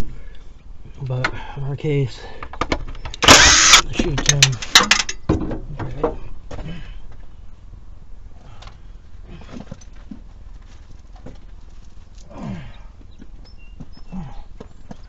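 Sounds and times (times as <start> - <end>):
hand tools and metal parts clicking: 3.0 - 5.3.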